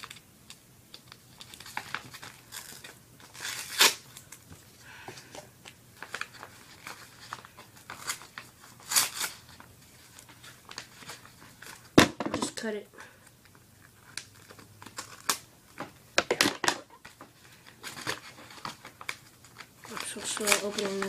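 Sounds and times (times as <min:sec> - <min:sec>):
packaging crinkling and tearing: 0:00.0 - 0:04.8, 0:05.6 - 0:12.6, 0:13.4 - 0:21.0.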